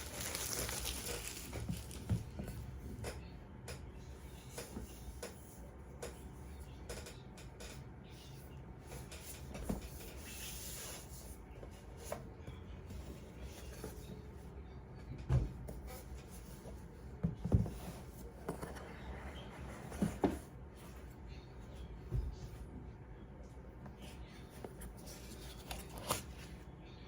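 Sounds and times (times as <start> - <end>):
packaging rustle: 0.0 - 2.3
hands handling a box: 0.0 - 2.4.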